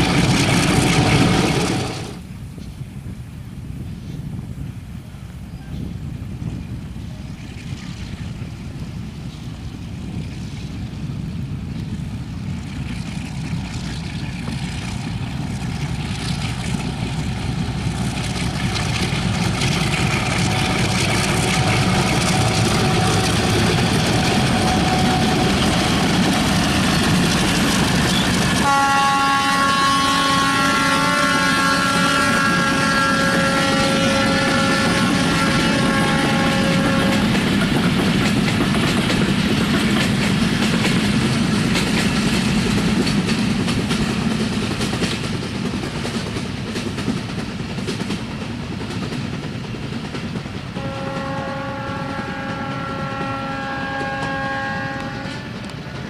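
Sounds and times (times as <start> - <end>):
train running past: 0.0 - 56.0
locomotive horn blast: 20.4 - 26.2, 28.1 - 37.5, 50.7 - 55.7.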